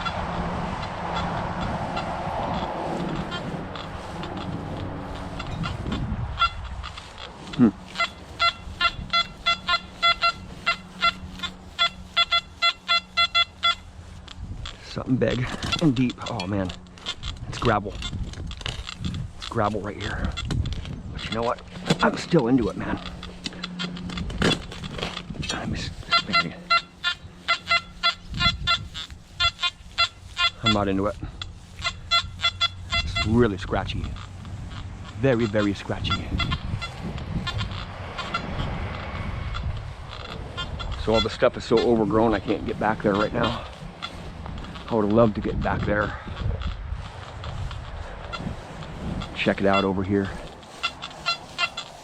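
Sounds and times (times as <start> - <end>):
rustle: 0.0 - 52.0
metal detector beeps: 8.0 - 13.9.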